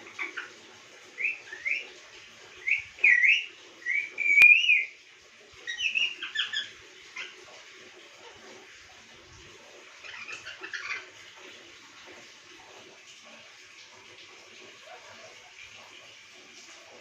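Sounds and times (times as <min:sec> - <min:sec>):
parrot chirps: 0:02.6 - 0:04.9, 0:05.7 - 0:07.4
parrot whistling: 0:02.6 - 0:04.9, 0:05.7 - 0:06.7.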